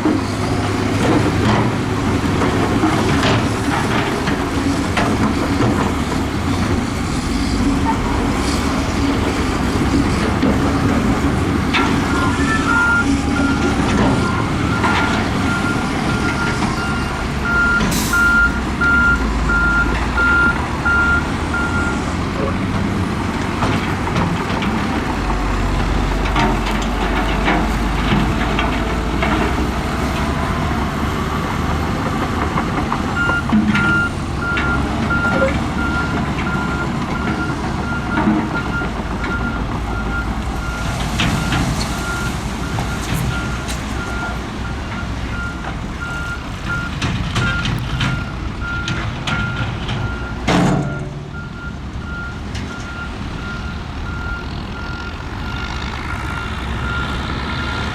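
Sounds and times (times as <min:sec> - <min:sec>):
diesel earthmoving machinery running: 0:00.0 - 0:57.9
reversing alarm beeping: 0:12.0 - 0:22.0, 0:33.2 - 0:57.9
metallic knocks and clanks: 0:40.9 - 0:51.6.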